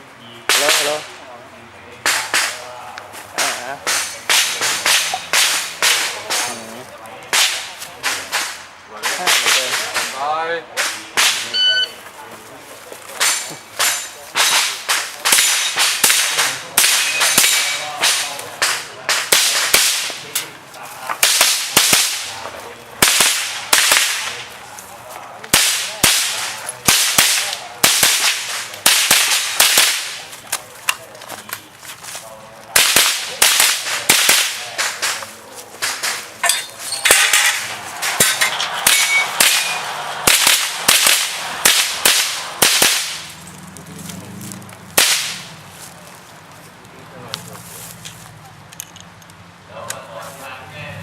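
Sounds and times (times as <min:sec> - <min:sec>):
rifle shots cracking: 0:13.2 - 0:20.2, 0:21.2 - 0:22.4, 0:23.0 - 0:24.5, 0:25.5 - 0:30.3, 0:32.7 - 0:35.2, 0:37.1 - 0:43.5, 0:45.0 - 0:45.5.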